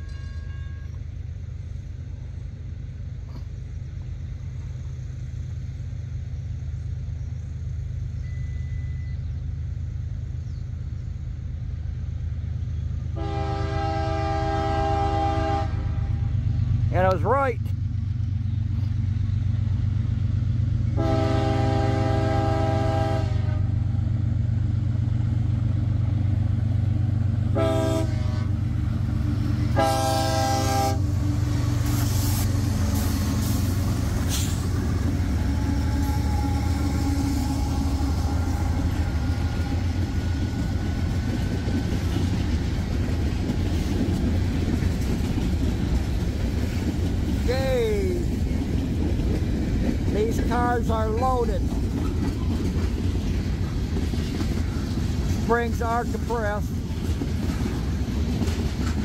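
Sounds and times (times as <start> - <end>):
train horn blasts: 0.0 - 1.0, 13.2 - 16.4, 20.9 - 23.9, 27.5 - 28.7, 29.6 - 33.6, 35.4 - 40.0
diesel locomotives rumbling: 0.0 - 59.0
train wheels rumbling on rail: 0.0 - 59.0.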